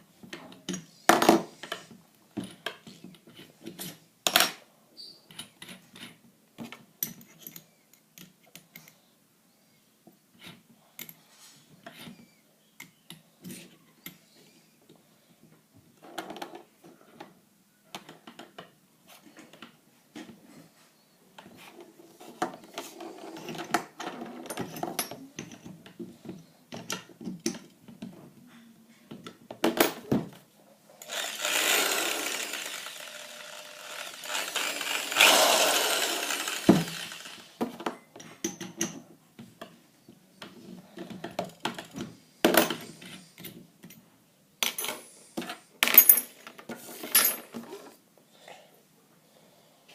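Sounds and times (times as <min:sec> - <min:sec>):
drill chuck clicks and rattles: 0:31.0 - 0:37.6
electric drill running: 0:31.0 - 0:37.6.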